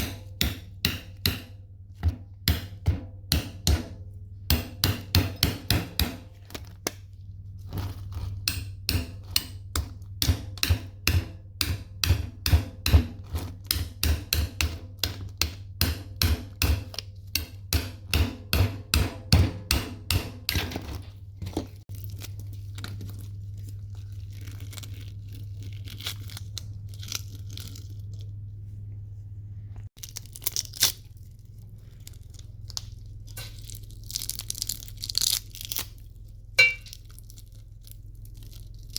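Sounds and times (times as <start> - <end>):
hammer striking metal: 0.0 - 1.6, 2.5 - 6.2, 15.8 - 20.8, 36.6 - 37.0
steady low hum: 0.0 - 38.9.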